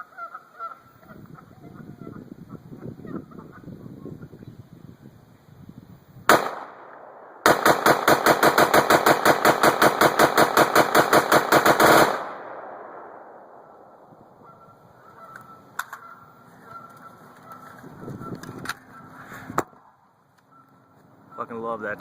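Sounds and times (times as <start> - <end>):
rifle gunshots: 6.3 - 14.0.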